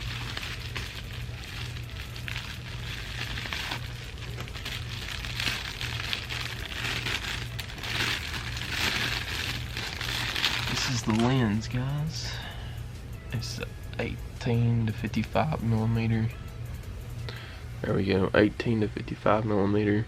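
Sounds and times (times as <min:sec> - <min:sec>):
packaging rustling and crinkling: 0:00.0 - 0:11.7
steady low hum: 0:00.0 - 0:20.0.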